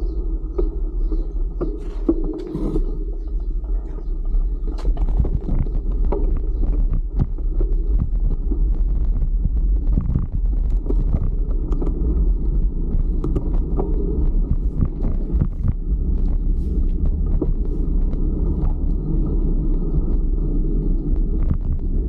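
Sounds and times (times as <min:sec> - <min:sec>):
bicycle tyres on road: 0:00.0 - 0:22.0
wind buffeting microphone: 0:00.0 - 0:22.0.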